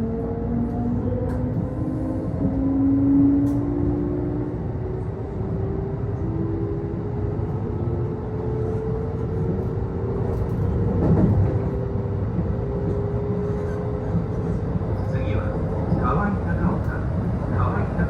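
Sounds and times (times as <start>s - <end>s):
train wheels rumbling on rail: 0.0s - 18.0s
train car rattle: 9.4s - 12.4s.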